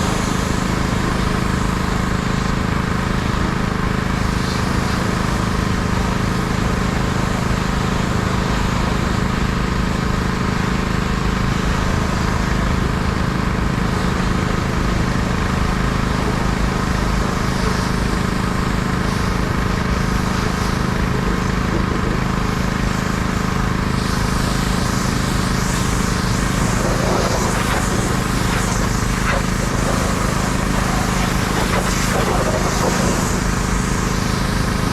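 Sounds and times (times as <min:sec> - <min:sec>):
engine running steadily: 0:00.0 - 0:34.9
hiss: 0:24.0 - 0:34.8.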